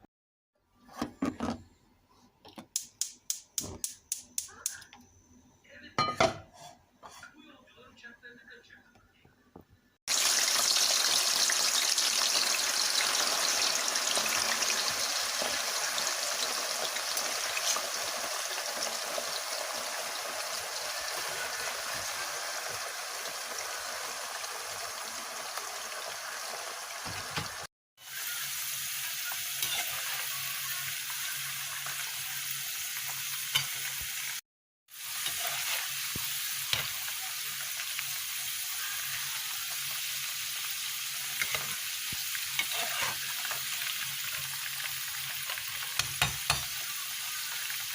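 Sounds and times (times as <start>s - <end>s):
food sizzling in hot oil: 10.1s - 47.9s.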